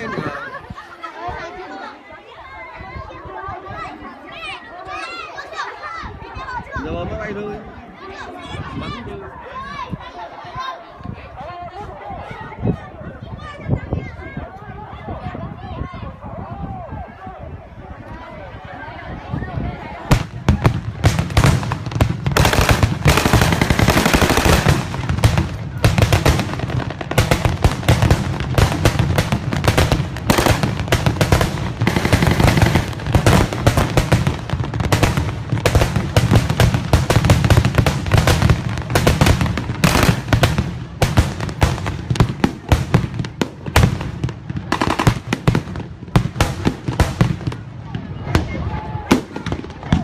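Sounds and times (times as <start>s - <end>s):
rapid gunfire: 20.1s - 43.1s.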